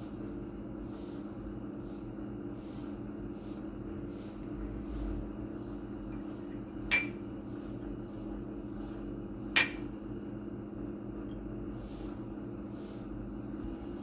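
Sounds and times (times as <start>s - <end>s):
steady low hum: 0.0s - 14.0s
utensil clinking on dish: 6.9s - 7.2s, 9.6s - 9.9s.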